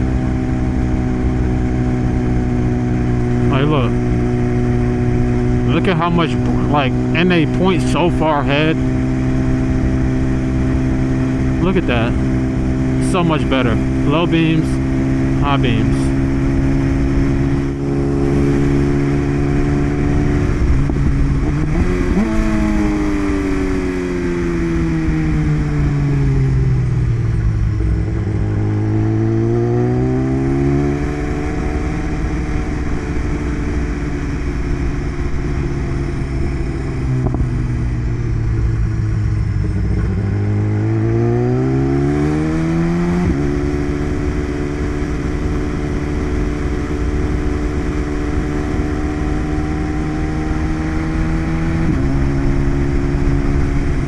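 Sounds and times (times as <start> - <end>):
motorcycle engine while riding: 0.0 - 54.0
rush of wind: 13.7 - 54.0.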